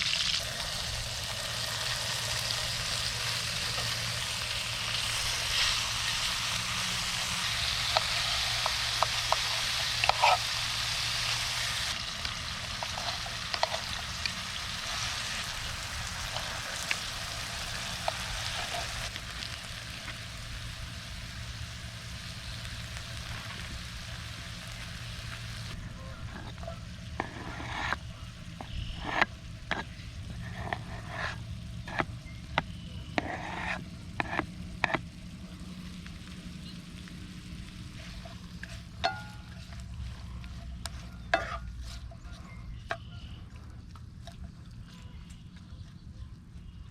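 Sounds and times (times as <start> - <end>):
food sizzling in a pan: 0.0 - 32.0.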